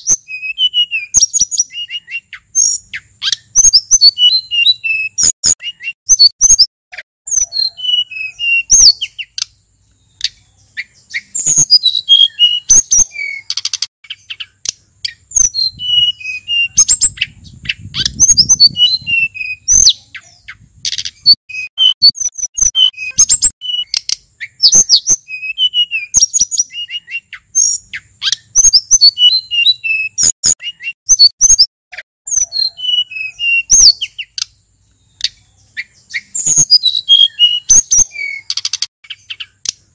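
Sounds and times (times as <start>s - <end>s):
songbird whistling and chirping: 0.0s - 6.7s, 7.3s - 39.9s.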